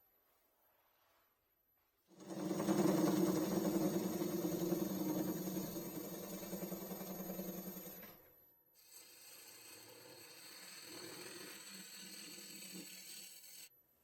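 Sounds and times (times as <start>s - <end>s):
wood lathe humming: 2.2s - 7.9s, 8.8s - 13.7s.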